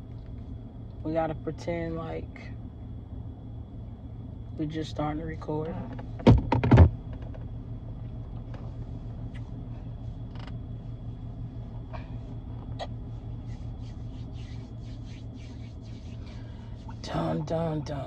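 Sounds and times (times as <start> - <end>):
car engine idling: 0.0 - 18.0
sharp knocks: 6.2 - 7.4.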